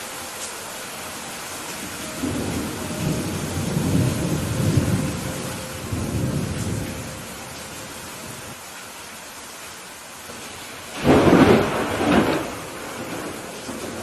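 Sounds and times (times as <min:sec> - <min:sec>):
steady rain hissing: 0:00.0 - 0:14.0
rolling thunder rumble: 0:01.8 - 0:08.6, 0:10.4 - 0:14.0.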